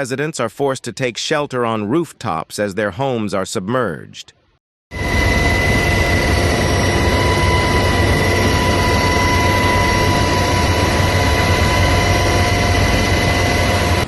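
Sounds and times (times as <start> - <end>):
aircraft engine droning: 4.9 - 14.0.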